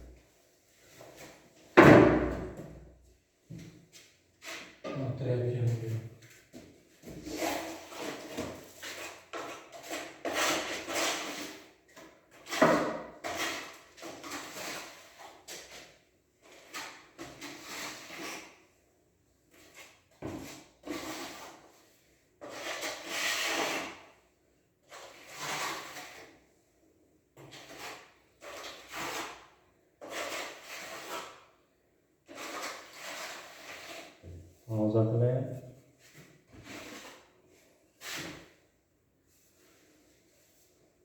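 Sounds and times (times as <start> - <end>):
roller scraping putty on wall: 7.1 - 18.6, 19.6 - 24.2, 24.8 - 26.4, 27.4 - 31.6, 32.2 - 34.4, 36.0 - 38.6.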